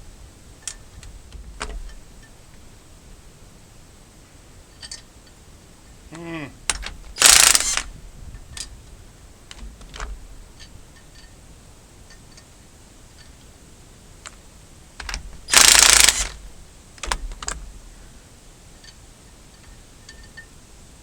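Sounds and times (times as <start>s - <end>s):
harsh mechanical burst: 6.7s - 8.0s, 15.0s - 17.6s
light mechanical clicks: 6.7s - 8.8s, 9.5s - 11.4s, 14.2s - 18.0s.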